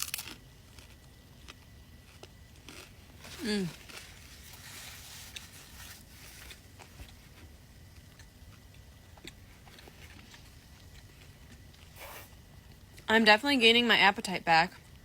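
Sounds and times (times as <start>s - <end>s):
chewing and biting food: 0.0s - 4.6s.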